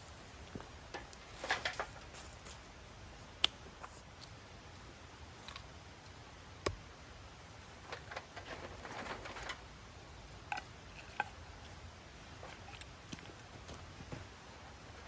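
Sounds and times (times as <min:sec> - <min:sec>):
rustling: 0:07.6 - 0:09.8.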